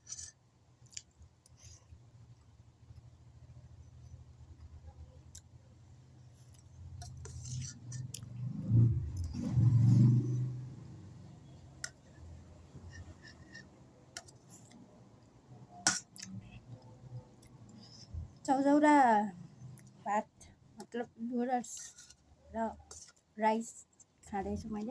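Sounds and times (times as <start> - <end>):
utensil scraping a plate: 7.0 - 8.2.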